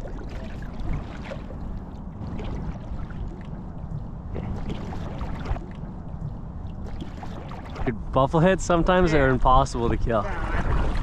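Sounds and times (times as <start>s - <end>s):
small water splashes: 0.0s - 8.0s
water sloshing around wading person: 0.0s - 8.0s.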